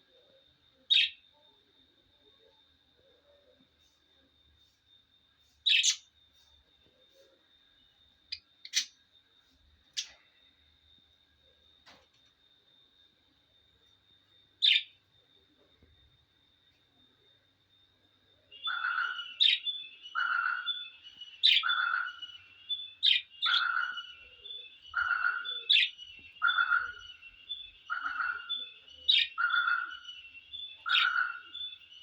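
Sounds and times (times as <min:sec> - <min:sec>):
thin steady high tone: 0:00.0 - 0:32.0
parrots high chirps: 0:00.9 - 0:01.2, 0:05.6 - 0:06.2, 0:08.3 - 0:09.0, 0:09.9 - 0:10.2, 0:14.6 - 0:15.0, 0:18.5 - 0:32.0.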